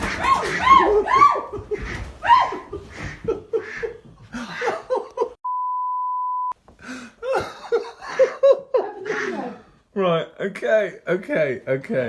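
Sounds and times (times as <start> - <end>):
censor bleep: 5.4 - 6.6.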